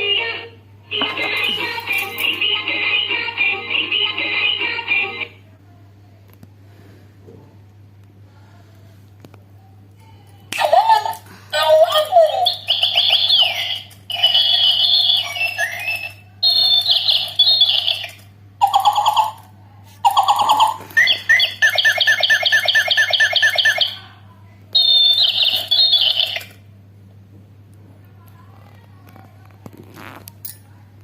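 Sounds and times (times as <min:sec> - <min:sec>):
musical toy bleeping tones: 0:11.6 - 0:19.5, 0:20.1 - 0:24.0, 0:24.8 - 0:26.6.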